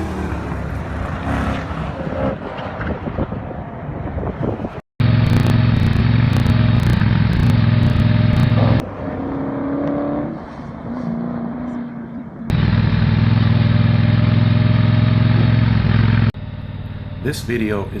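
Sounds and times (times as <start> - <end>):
vehicle engines and road noise: 0.0 - 18.0
engine with low drone: 5.0 - 18.0.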